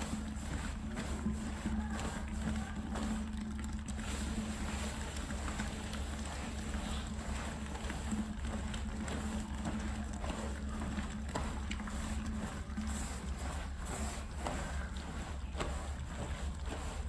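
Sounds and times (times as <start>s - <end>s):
cleaning machine hum: 0.0s - 17.0s
water washing: 0.0s - 17.0s.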